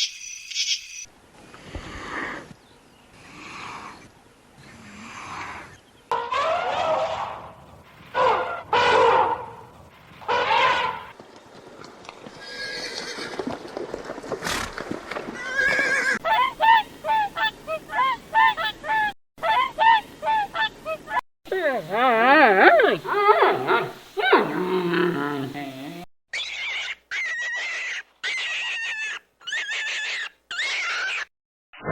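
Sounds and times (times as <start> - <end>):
animal calls: 3.2 - 7.6, 10.3 - 11.2, 15.4 - 31.3
repeated honking calls: 10.2 - 11.1.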